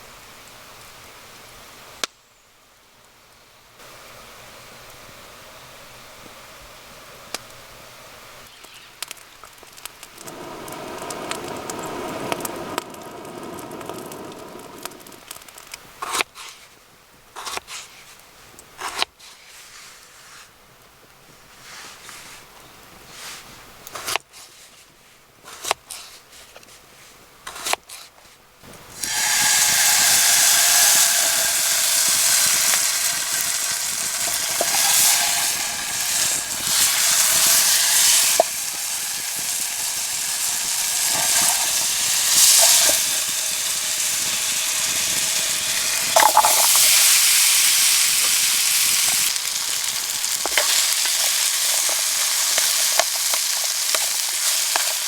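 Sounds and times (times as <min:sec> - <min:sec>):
food sizzling in a hot pan: 0:08.5 - 0:16.2, 0:28.7 - 0:55.0
utensil stirring clicks: 0:29.0 - 0:47.2, 0:48.1 - 0:55.0.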